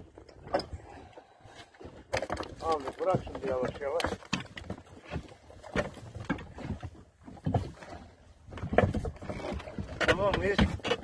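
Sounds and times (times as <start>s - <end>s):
knocks and clatter of gear: 1.9s - 7.8s, 8.5s - 11.0s.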